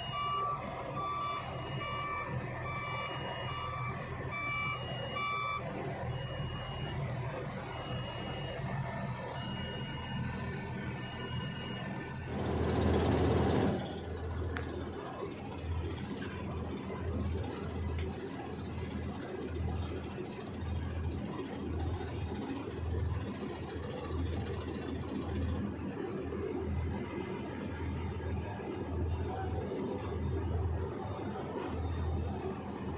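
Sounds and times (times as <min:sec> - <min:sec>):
excavator diesel engine throbbing: 0:00.0 - 0:19.7.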